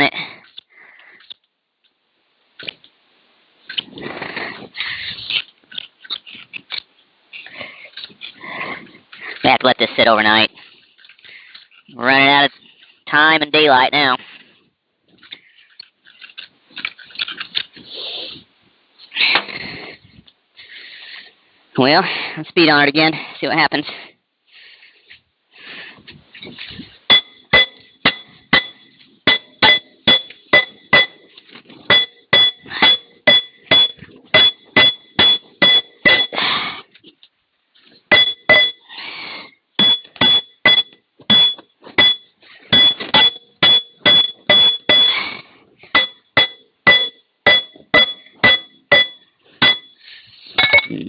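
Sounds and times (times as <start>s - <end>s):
hammer striking steel: 27.1s - 31.2s, 31.8s - 36.4s, 38.1s - 38.9s, 39.8s - 45.2s, 45.9s - 50.0s.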